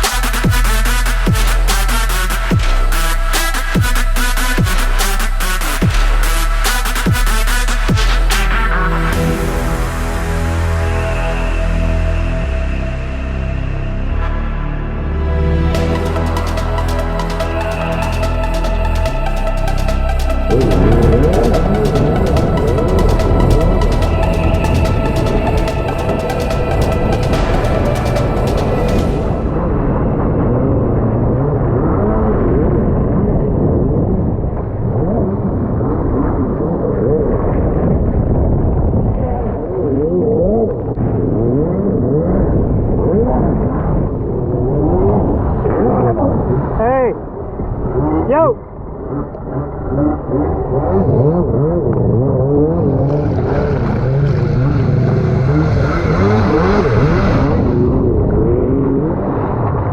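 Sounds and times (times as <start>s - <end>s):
jet ski engine revving: 15.7s - 28.6s, 48.9s - 59.8s
rush of wind and water: 20.4s - 59.9s.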